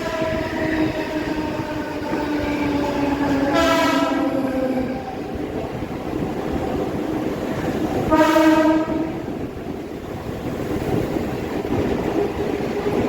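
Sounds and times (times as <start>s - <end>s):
train running: 0.0s - 13.0s
train horn blast: 3.3s - 4.4s, 8.1s - 9.3s.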